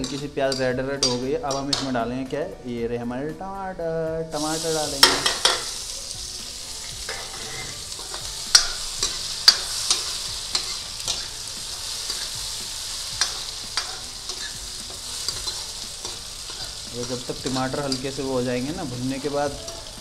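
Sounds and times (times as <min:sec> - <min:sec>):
food sizzling in hot oil: 0:00.0 - 0:02.3, 0:04.3 - 0:20.0
metal ladle scraping pan: 0:04.4 - 0:05.9, 0:06.7 - 0:20.0.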